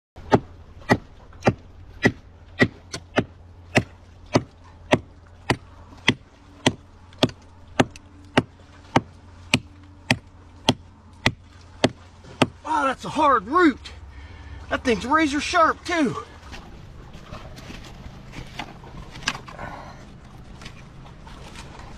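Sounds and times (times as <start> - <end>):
blade chopping into tree root: 0.3 - 12.6.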